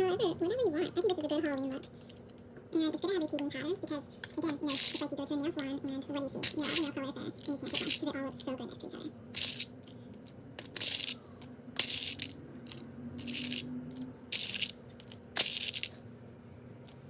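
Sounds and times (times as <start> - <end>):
teeth rattling and clinking: 6.4 - 8.0, 13.2 - 16.0.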